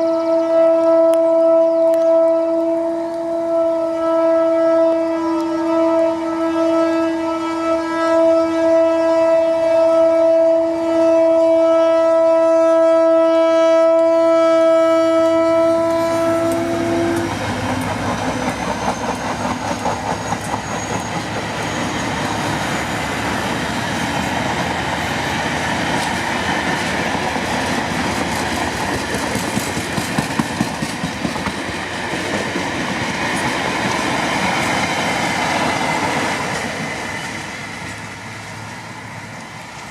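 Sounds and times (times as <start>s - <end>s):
locomotive horn blast: 0.0s - 19.4s
train passing rumble: 0.0s - 39.9s
wheels clacking over rail joints: 15.8s - 38.2s.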